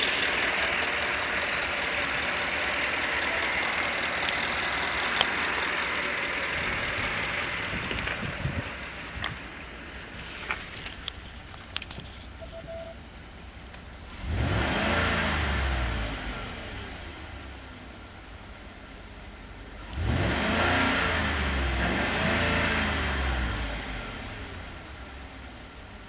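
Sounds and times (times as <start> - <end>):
sharp clicks: 0.0 - 9.6
car engine idling and revving: 0.0 - 26.0.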